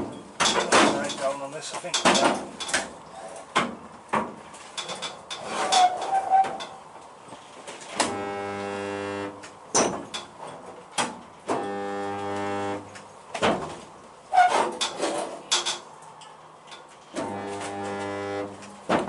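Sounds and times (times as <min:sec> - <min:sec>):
welder transformer buzzing: 0:08.0 - 0:09.5, 0:11.5 - 0:13.0, 0:17.1 - 0:18.8.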